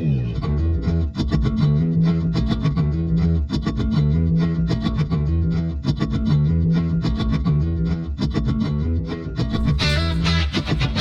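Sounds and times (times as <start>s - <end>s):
bass line and beat: 0.0s - 11.0s
distorted electric guitar: 9.5s - 11.0s.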